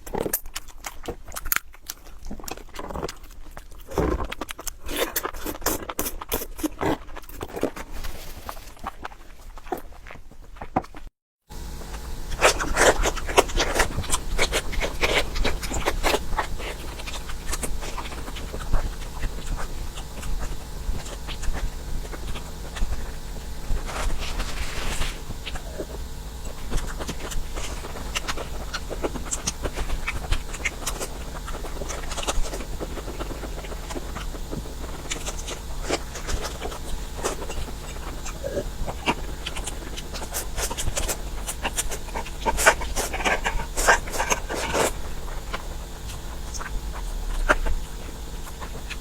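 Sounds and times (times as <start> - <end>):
wet chewing and smacking: 0.0 - 49.0
steady low hum: 11.5 - 49.0.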